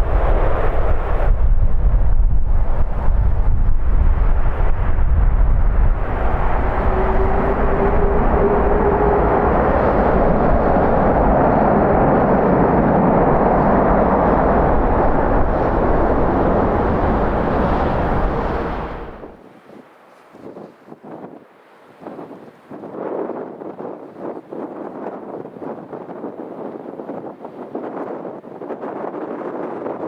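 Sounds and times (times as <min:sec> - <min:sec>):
jet engines roaring: 0:00.0 - 0:19.4
wind buffeting microphone: 0:00.0 - 0:30.0.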